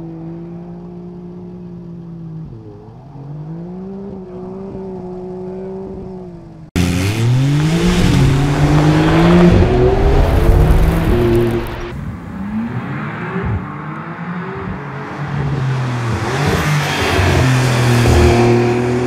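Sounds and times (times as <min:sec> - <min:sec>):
car engine revving: 0:02.4 - 0:19.0
tyres spraying gravel: 0:07.3 - 0:11.9.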